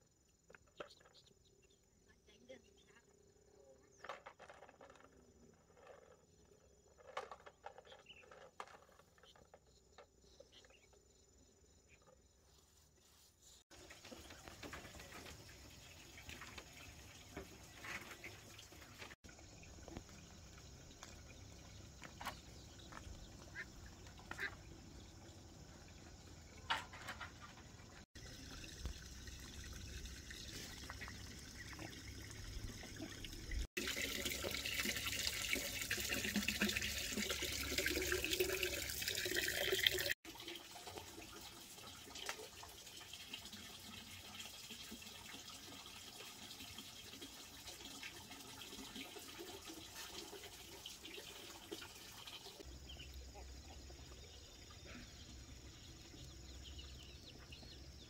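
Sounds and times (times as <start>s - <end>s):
water running and splashing: 13.6s - 53.0s.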